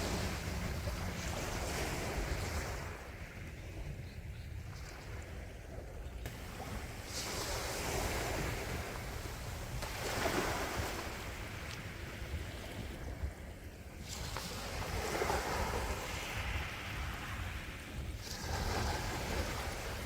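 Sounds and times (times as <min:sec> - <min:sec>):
gentle sea waves on shore: 0:00.0 - 0:20.0
low rumble of wind: 0:00.0 - 0:20.0.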